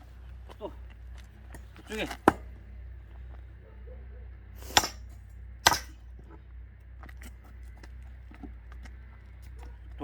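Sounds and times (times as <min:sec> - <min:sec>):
axe cracking firewood: 0:01.5 - 0:02.6, 0:04.6 - 0:06.0.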